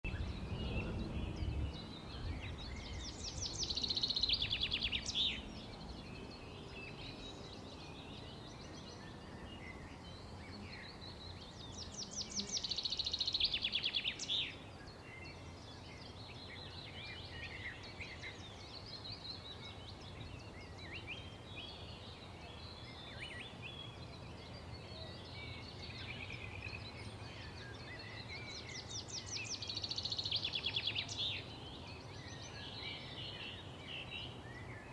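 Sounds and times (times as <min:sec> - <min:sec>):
faint low rumble: 0:00.1 - 0:03.3
soft bird chirps: 0:00.1 - 0:34.9.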